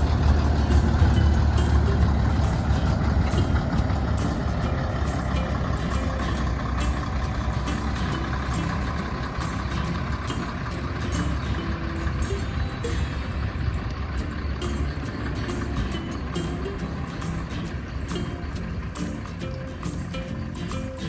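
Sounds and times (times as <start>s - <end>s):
train diesel engine rumbling: 0.0s - 21.0s.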